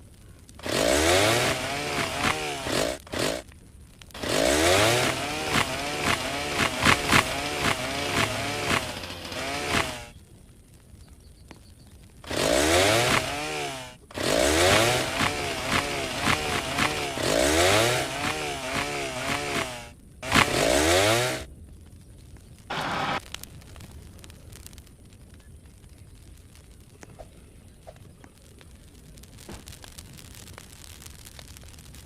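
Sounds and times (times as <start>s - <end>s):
chainsaw cutting a tree: 0.6s - 3.5s, 4.2s - 10.1s, 12.2s - 21.5s, 22.7s - 23.2s.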